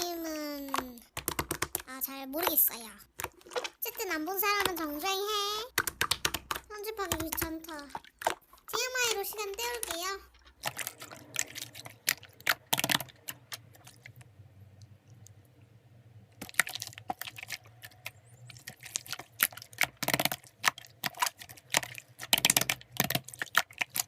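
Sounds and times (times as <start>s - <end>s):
keyboard typing clicks: 1.1s - 1.9s, 5.7s - 7.6s.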